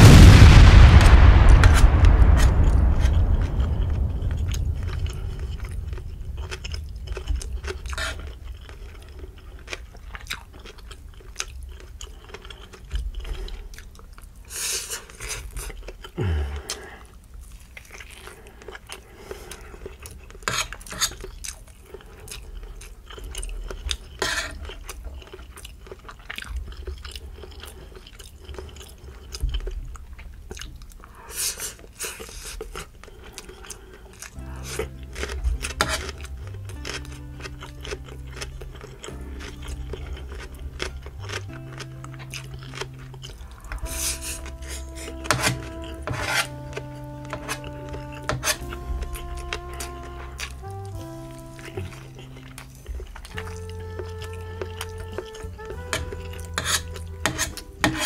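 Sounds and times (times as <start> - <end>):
loud bites: 0.0 - 8.1
close-up chewing and mouth sounds: 1.2 - 58.0.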